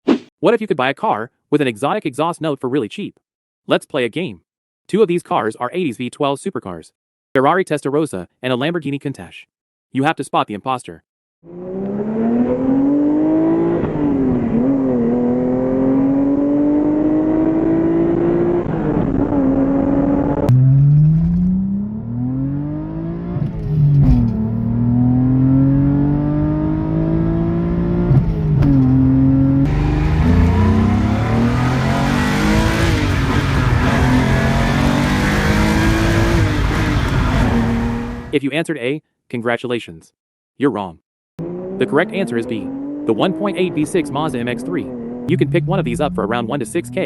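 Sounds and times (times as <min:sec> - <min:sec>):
cars accelerating through gears: 0:11.5 - 0:38.3, 0:41.4 - 0:47.0.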